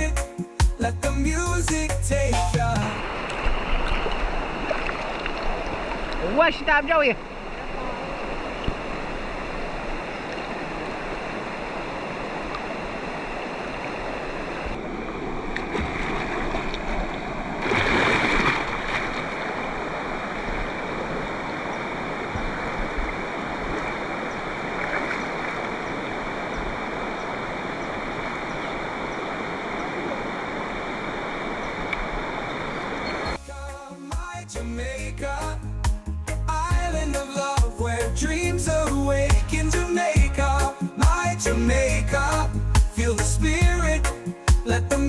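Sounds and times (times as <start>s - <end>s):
river water rushing: 2.8s - 34.1s.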